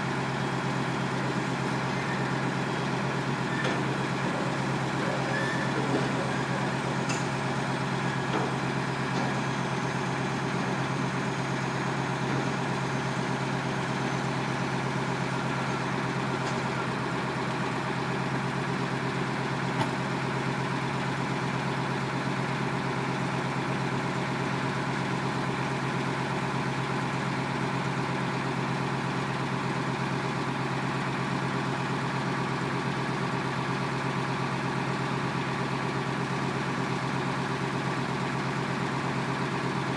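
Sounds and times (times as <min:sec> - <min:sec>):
heavy truck engine idling: 0:00.0 - 0:39.9.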